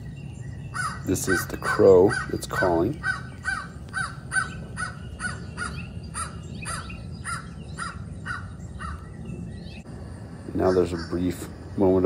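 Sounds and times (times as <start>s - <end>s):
crow caws through a speaker: 0.8s - 9.0s.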